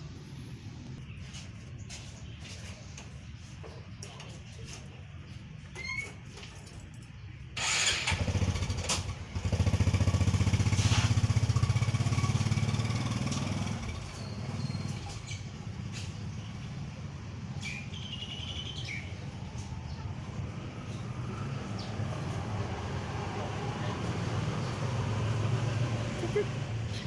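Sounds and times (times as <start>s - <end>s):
small engine running: 7.6s - 15.0s.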